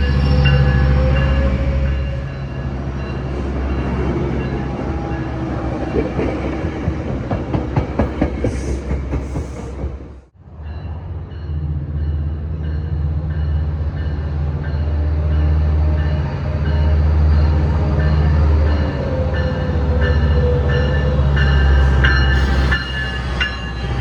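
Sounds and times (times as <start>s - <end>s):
diesel locomotive engine drone: 0.0s - 24.0s
train wheels clicking over rail joints: 5.8s - 10.2s.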